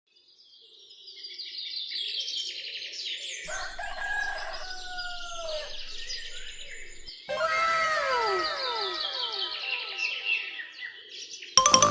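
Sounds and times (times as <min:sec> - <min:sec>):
rooster crowing: 0:03.5 - 0:07.1
small birds chirping: 0:03.5 - 0:07.1.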